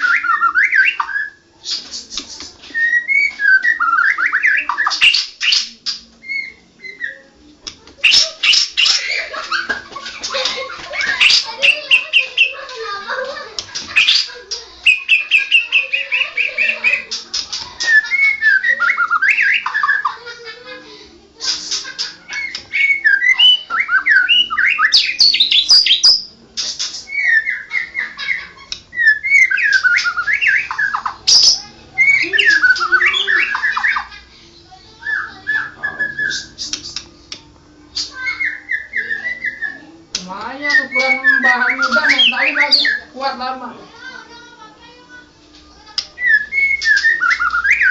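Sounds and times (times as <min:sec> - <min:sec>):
songbird singing whistles and trills: 0:00.0 - 0:02.0, 0:02.7 - 0:07.3, 0:14.9 - 0:17.1, 0:17.8 - 0:20.1, 0:22.3 - 0:26.3, 0:27.0 - 0:34.1, 0:35.0 - 0:37.1, 0:38.0 - 0:40.0, 0:40.6 - 0:43.2, 0:46.2 - 0:47.9.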